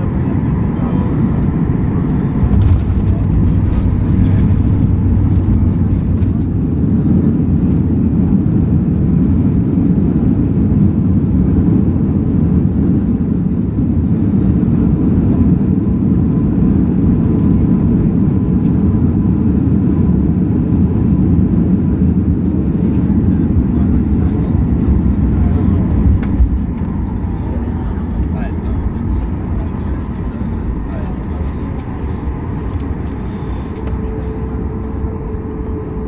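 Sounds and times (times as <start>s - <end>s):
jet engine and airflow rumble: 0.0s - 36.0s
faint steady whine: 23.7s - 36.0s.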